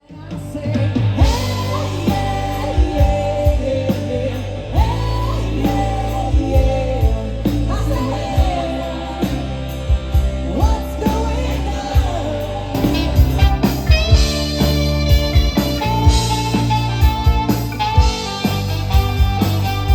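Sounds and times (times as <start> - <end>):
bass: 0.0 - 19.9
lead melody with pitch bends: 12.0 - 19.9
drum beat: 12.8 - 19.9.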